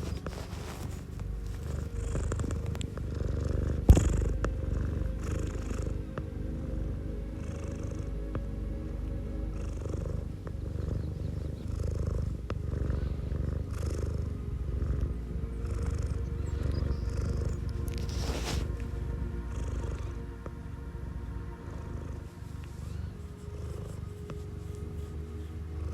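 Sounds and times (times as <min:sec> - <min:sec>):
cat hissing softly: 0:00.0 - 0:01.2, 0:17.1 - 0:18.9
cat purring: 0:00.0 - 0:25.9
soft background music: 0:00.0 - 0:25.9.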